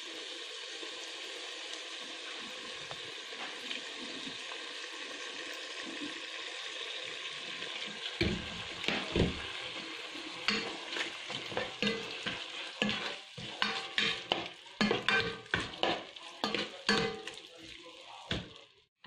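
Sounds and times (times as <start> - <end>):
chicken and onions sizzling: 0.0 - 18.9
spatula scraping and knocking pot: 8.2 - 17.5.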